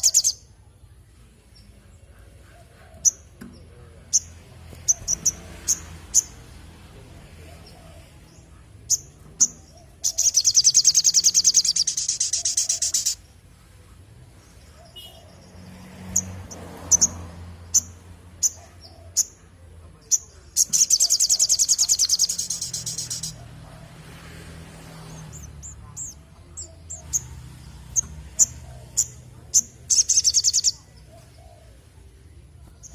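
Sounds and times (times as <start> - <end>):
bird high-pitched trills: 0.0 - 0.4.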